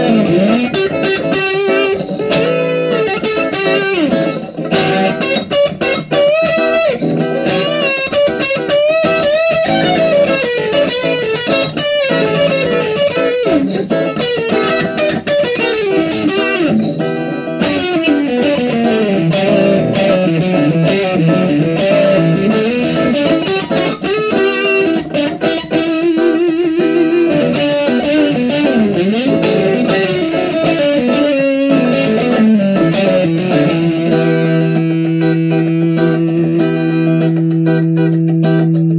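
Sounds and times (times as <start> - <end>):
guitar music with gliding notes: 0.0 - 38.9.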